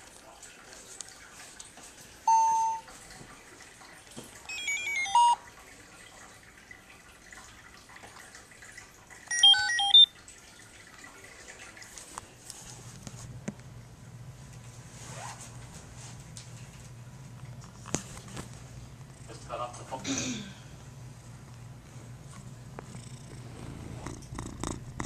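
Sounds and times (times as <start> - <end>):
steady electronic beep: 9.3 - 10.1
stepped electronic tones: 9.3 - 10.1.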